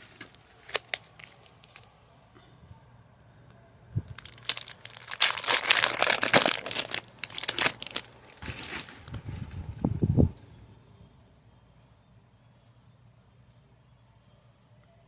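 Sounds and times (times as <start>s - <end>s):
foil wrapper crinkling: 0.0s - 2.0s, 4.1s - 9.3s.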